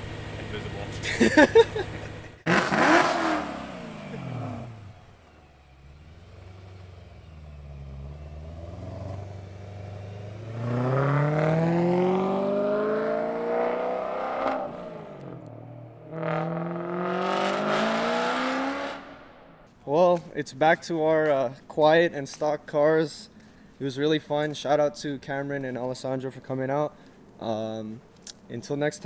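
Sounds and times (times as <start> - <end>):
car engine revving: 0.0 - 19.6.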